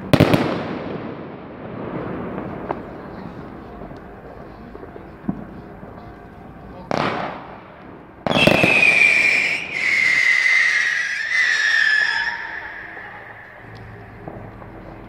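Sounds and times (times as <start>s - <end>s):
firework bang: 0.0s - 3.5s, 6.9s - 15.0s
whistling firework: 0.0s - 4.2s, 6.9s - 15.0s.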